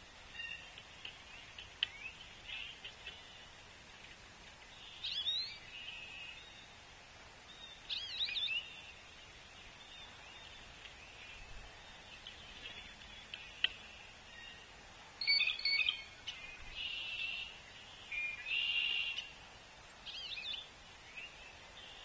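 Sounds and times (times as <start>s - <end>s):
faint outdoor background: 0.0s - 22.0s
songbirds calling: 0.0s - 22.0s.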